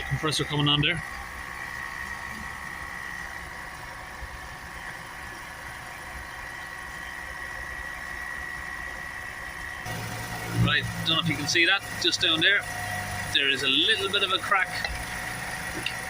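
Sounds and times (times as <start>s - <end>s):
air compressor running: 0.0s - 16.0s
diesel engine idling: 9.8s - 16.0s.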